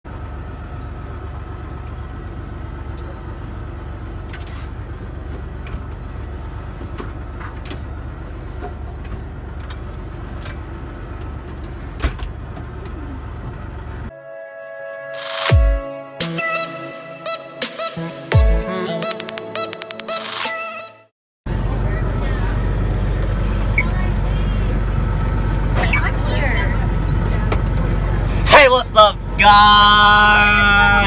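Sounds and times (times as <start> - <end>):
bus engine and road rumble: 0.0 - 14.1, 21.5 - 31.0.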